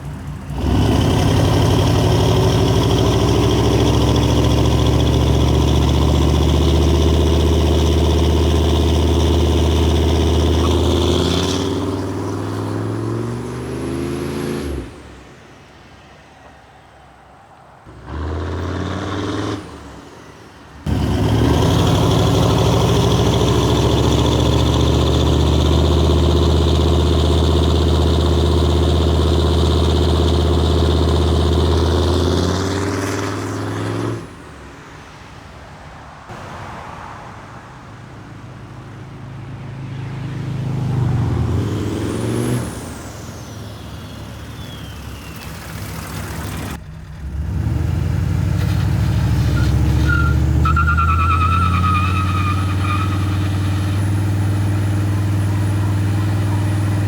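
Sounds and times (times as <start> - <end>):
truck engine revving hard: 0.5 - 15.1, 17.9 - 20.2, 20.9 - 34.4, 40.6 - 57.0.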